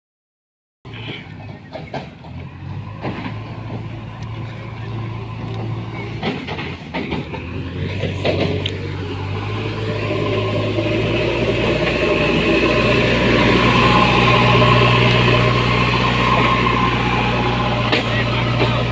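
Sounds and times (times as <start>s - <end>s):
tractor diesel engine running: 0.9s - 18.9s
knocks and clanks: 1.0s - 4.6s, 5.4s - 9.0s, 16.2s - 18.9s.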